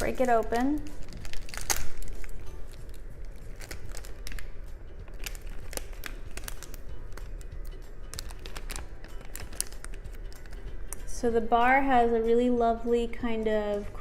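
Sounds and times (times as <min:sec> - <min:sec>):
foil wrapper crinkling: 0:00.0 - 0:11.1.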